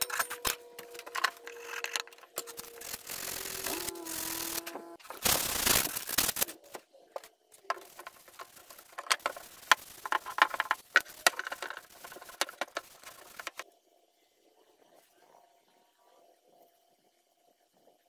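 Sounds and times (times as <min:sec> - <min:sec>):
wood scraping noise: 0:07.6 - 0:13.6.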